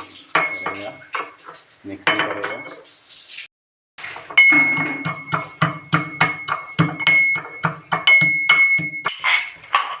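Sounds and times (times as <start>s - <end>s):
pounding garlic and chillies into paste: 4.8s - 9.1s.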